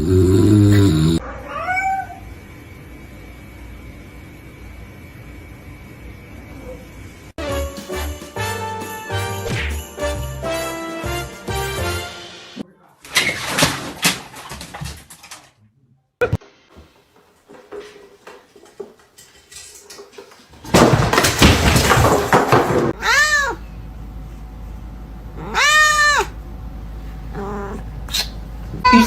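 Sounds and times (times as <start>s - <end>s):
cat meowing: 1.3s - 2.3s, 23.0s - 23.6s, 25.4s - 26.4s, 27.3s - 27.8s.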